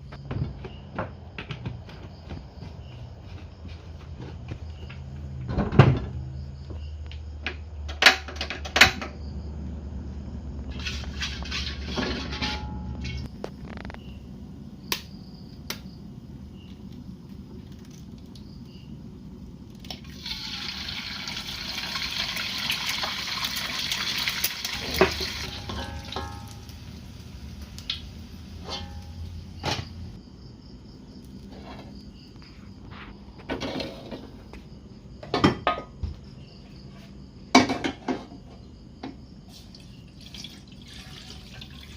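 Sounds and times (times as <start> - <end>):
dishes and utensils clinking: 10.9 - 13.3, 24.8 - 26.7, 28.6 - 29.9
running water: 40.1 - 41.9.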